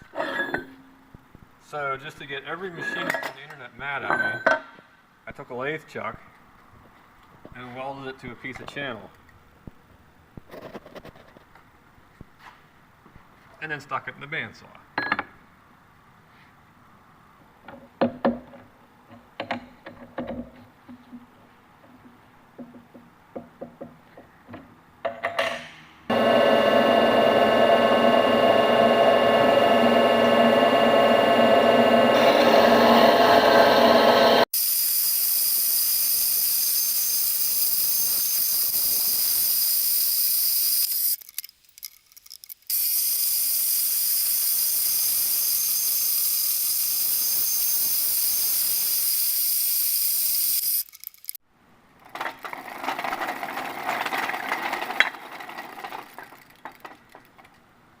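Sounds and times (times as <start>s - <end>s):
bandsaw cutting metal: 26.1s - 34.5s, 42.7s - 49.3s.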